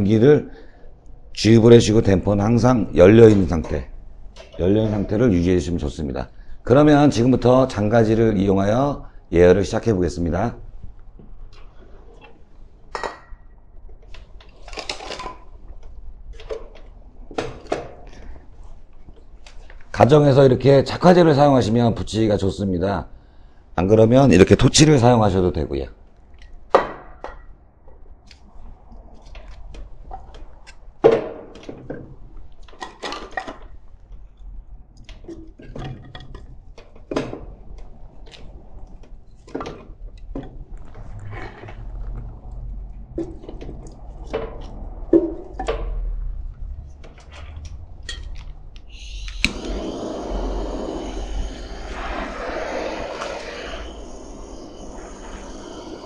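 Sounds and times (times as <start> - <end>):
gas torch hissing: 48.8 - 56.0.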